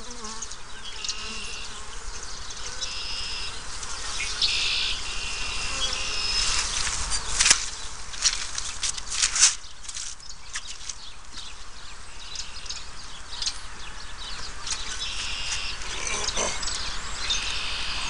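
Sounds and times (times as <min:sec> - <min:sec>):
bees whining past: 0:00.0 - 0:07.5
honeybees buzzing: 0:00.0 - 0:18.0.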